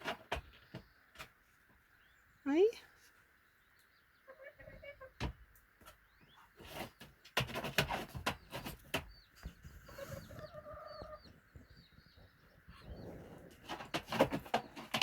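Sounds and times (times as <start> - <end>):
small birds chirping: 0.0 - 15.0
hen calling: 9.8 - 13.4.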